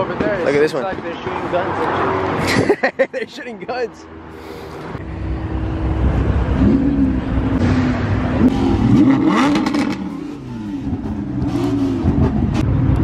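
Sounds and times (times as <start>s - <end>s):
car engine revving: 5.0s - 13.0s.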